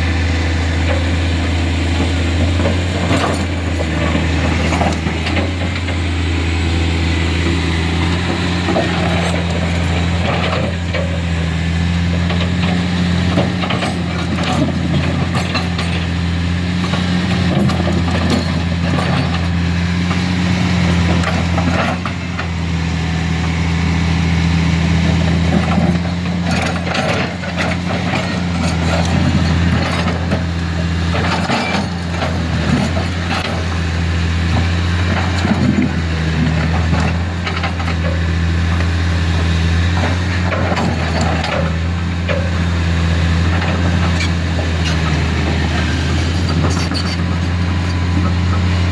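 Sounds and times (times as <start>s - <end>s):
diesel machinery running: 0.0s - 48.9s.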